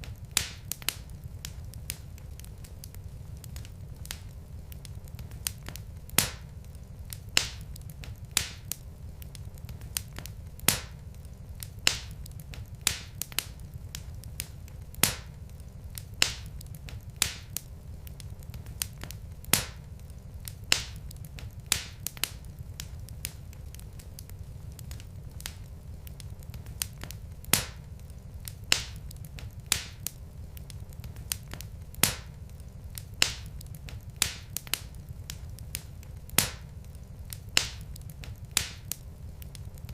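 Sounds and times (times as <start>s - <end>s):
low steady rumble: 0.0s - 39.9s
wood fire crackling: 0.0s - 39.9s.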